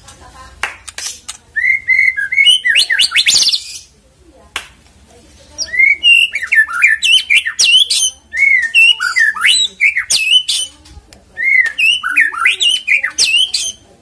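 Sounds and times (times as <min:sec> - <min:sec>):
bird whistling song: 0:01.5 - 0:03.9, 0:05.6 - 0:10.8, 0:11.4 - 0:13.9.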